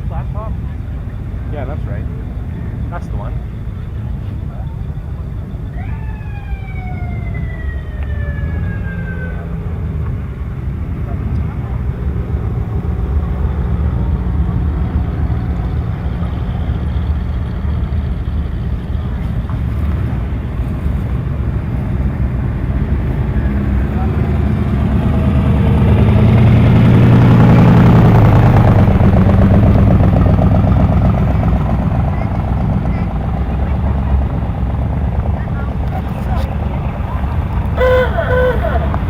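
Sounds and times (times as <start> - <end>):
car engines rumbling: 0.0 - 39.0
car passing close: 35.8 - 39.0.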